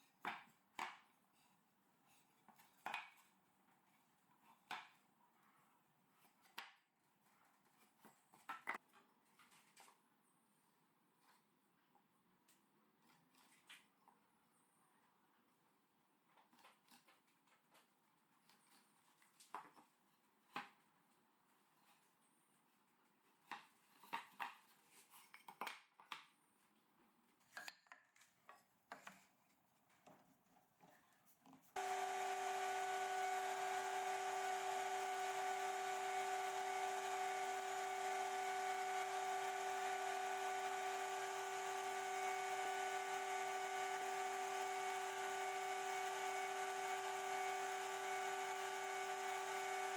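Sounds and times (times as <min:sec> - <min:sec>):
electric power tool motor running: 0:31.8 - 0:49.9.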